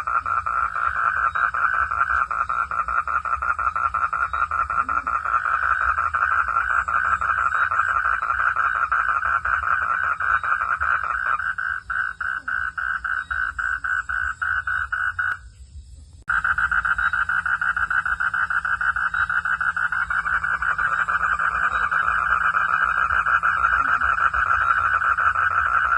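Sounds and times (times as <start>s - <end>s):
frogs calling in pulsed chorus: 0.0s - 15.6s, 16.3s - 25.9s.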